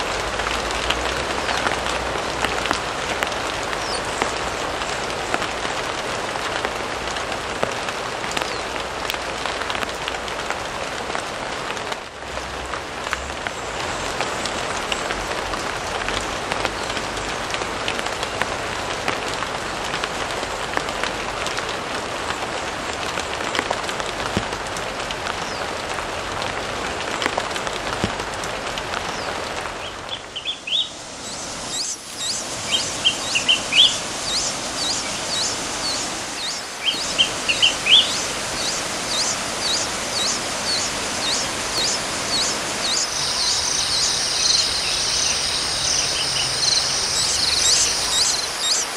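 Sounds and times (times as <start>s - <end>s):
bird lower chirps: 30.1s - 48.9s
bird sweeping calls: 30.1s - 48.9s
steady hiss: 30.3s - 48.9s.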